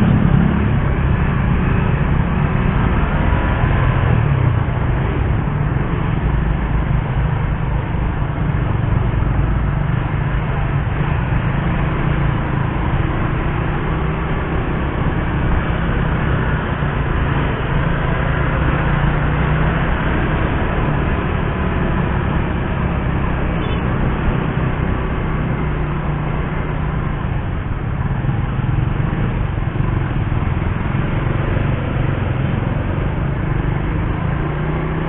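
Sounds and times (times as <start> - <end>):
motorcycle engine running: 0.0 - 35.0
road noise: 0.0 - 35.0.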